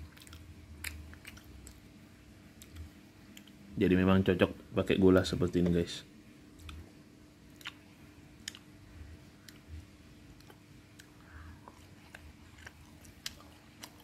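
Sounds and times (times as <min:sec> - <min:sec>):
chewing and mouth sounds: 0:00.0 - 0:03.7, 0:06.5 - 0:14.0
faint steady hum: 0:00.0 - 0:14.0.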